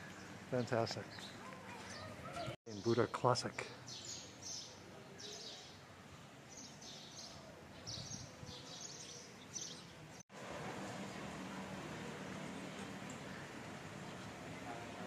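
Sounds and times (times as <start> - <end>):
small birds chirping: 0.0 - 10.2
outdoor ambience: 0.0 - 15.0.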